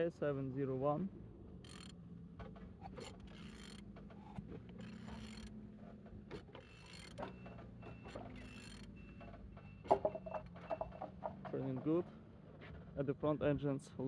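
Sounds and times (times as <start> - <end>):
engine clicks and creaks turning: 1.7 - 11.8.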